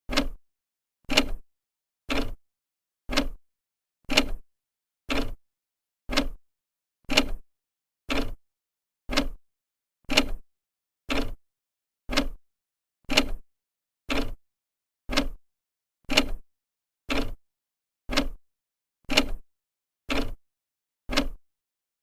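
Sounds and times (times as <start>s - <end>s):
clock ticking: 0.1s - 0.4s, 2.1s - 2.4s, 3.1s - 3.4s, 5.1s - 5.4s, 6.1s - 6.4s, 7.1s - 7.4s, 8.1s - 8.4s, 9.1s - 9.4s, 11.1s - 11.4s, 12.1s - 12.4s, 13.1s - 13.4s, 14.1s - 14.4s, 15.1s - 15.4s, 16.1s - 16.4s, 17.1s - 17.4s, 18.1s - 18.4s, 19.1s - 19.4s, 20.1s - 20.4s, 21.1s - 21.4s.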